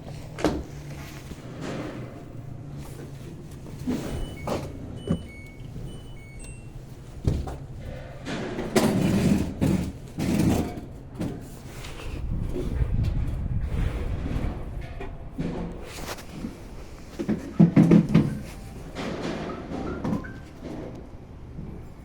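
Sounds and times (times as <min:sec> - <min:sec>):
washing machine humming: 0:00.0 - 0:22.0
short electronic beeps: 0:04.2 - 0:06.8
washing machine knocks: 0:17.2 - 0:20.9.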